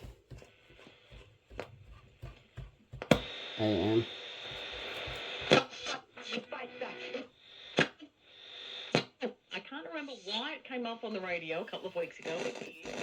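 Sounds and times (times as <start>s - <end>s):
radio static hiss: 3.2s - 9.0s, 11.5s - 13.0s.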